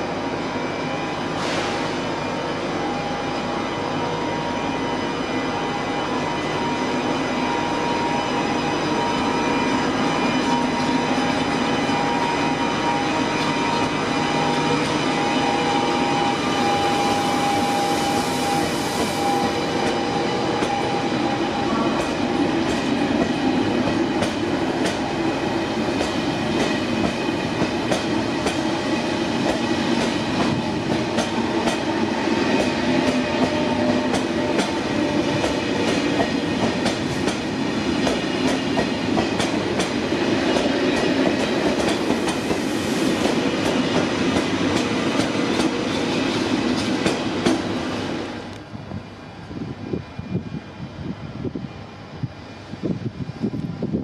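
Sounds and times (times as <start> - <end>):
train running noise: 0.0 - 54.0
steady high tone: 2.2 - 27.6.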